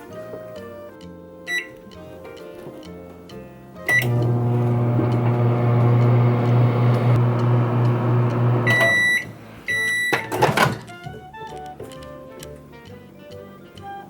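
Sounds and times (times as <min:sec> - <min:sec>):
microwave beeps: 0:01.5 - 0:01.7, 0:03.9 - 0:10.9
microwave oven humming: 0:03.9 - 0:10.8.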